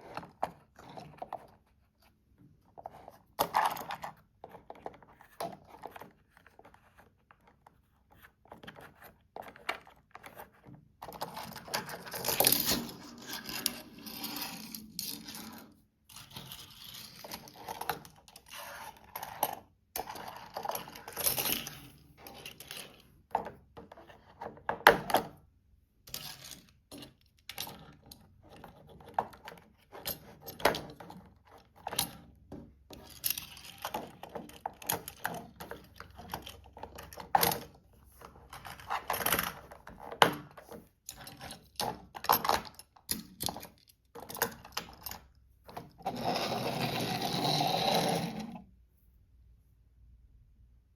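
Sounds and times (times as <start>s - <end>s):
toy scraping: 45.9s - 48.7s.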